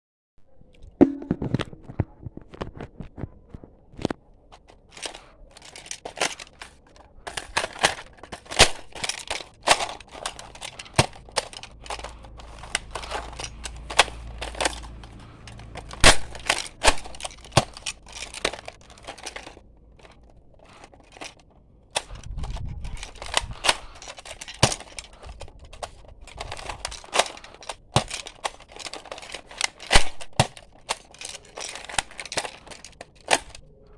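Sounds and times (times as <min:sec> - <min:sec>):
handling rustle: 0:00.6 - 0:33.9
plastic toy blaster clicks: 0:04.9 - 0:19.6, 0:22.0 - 0:33.6.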